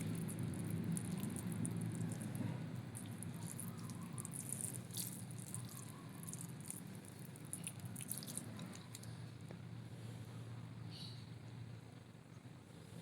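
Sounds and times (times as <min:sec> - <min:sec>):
mud squelching and scratching: 0:00.0 - 0:09.2
low steady hum: 0:00.0 - 0:13.0.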